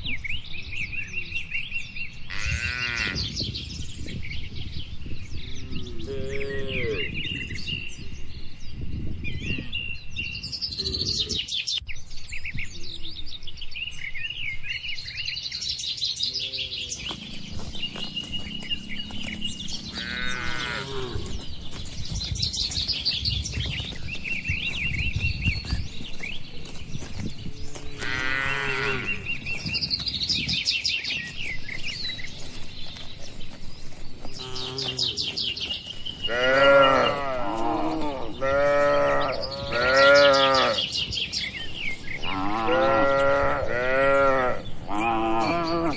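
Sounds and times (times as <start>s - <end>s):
small birds chirping: 0.0s - 45.9s
cattle mooing: 18.6s - 21.4s, 28.0s - 29.2s, 36.3s - 40.8s, 42.3s - 45.9s.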